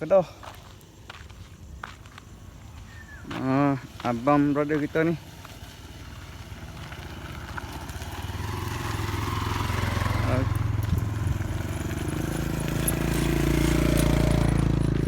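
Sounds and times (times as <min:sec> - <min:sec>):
vehicle engine running: 0:05.4 - 0:15.0.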